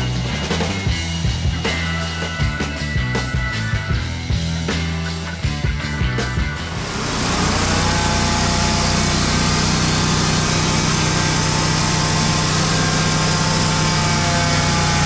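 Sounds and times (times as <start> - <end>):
engine humming: 0.0 - 15.0
music: 0.0 - 15.0.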